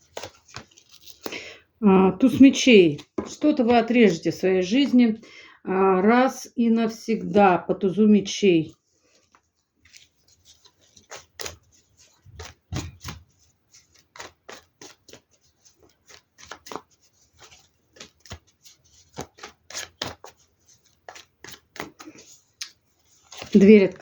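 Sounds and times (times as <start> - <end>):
cards clicking and slapping on table: 0.1 - 1.4, 9.9 - 23.6.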